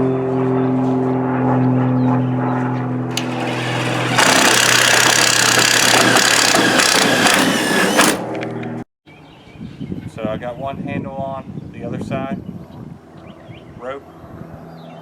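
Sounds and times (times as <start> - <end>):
power drill boring into wood: 3.1 - 8.5.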